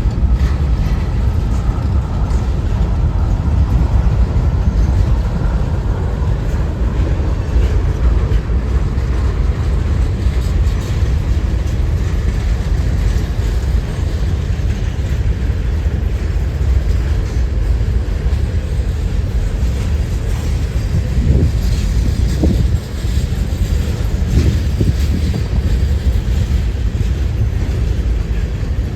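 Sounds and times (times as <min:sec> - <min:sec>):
train passing on rails: 0:00.0 - 0:28.9
wind noise on microphone: 0:00.0 - 0:28.9.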